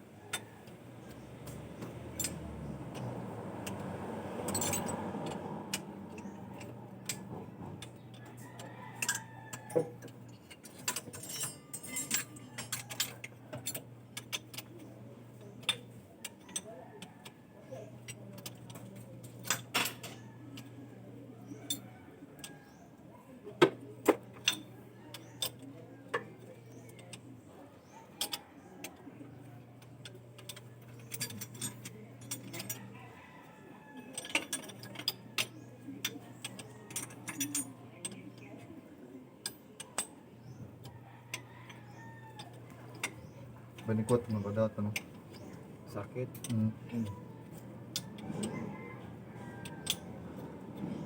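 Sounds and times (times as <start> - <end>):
metal tools clinking and tapping: 0.3 - 14.8, 18.0 - 20.7, 29.8 - 33.0, 34.0 - 38.5, 39.4 - 50.2.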